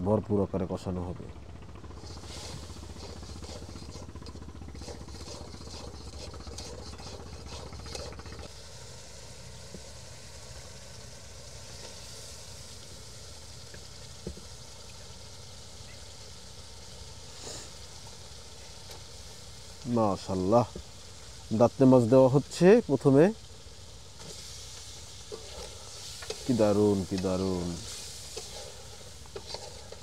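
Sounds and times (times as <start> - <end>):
metal spatula scraping wok: 2.0 - 8.5, 24.2 - 30.0
food sizzling in hot oil: 2.0 - 30.0.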